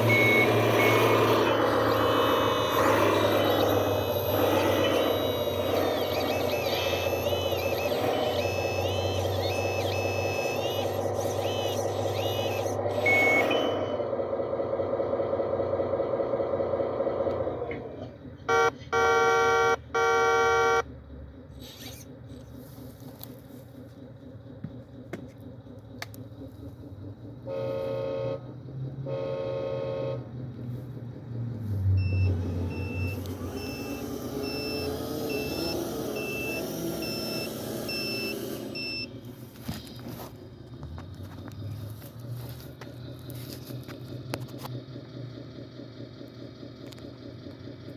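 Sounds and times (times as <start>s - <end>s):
backup alarm beeping: 0.0s - 14.4s, 18.5s - 20.9s, 31.9s - 39.2s
diesel engine running: 0.0s - 47.9s
horn blasts: 18.5s - 20.9s, 27.5s - 30.4s.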